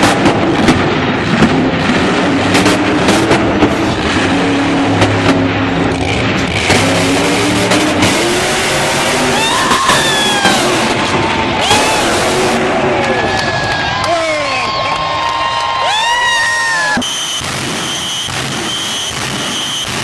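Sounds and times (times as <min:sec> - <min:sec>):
truck engine revving: 0:00.0 - 0:14.1, 0:16.9 - 0:20.0
high squeals: 0:09.0 - 0:12.8, 0:16.4 - 0:20.0.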